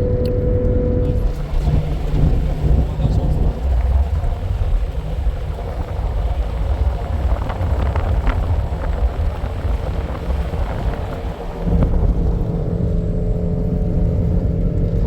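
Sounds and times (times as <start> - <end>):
vehicle engine and road rumble: 0.0 - 15.0.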